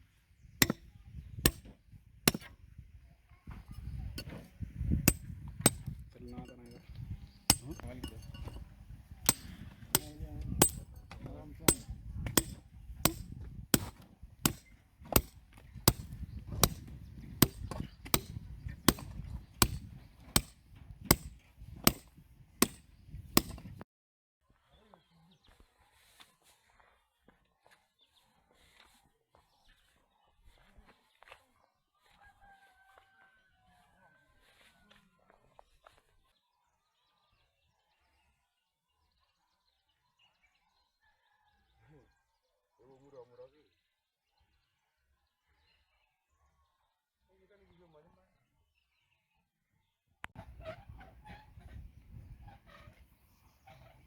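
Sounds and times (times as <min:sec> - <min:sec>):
striking tool blows: 0:00.6 - 0:00.8, 0:02.3 - 0:02.5, 0:05.1 - 0:06.0, 0:07.5 - 0:08.6, 0:09.2 - 0:11.0, 0:11.7 - 0:23.8.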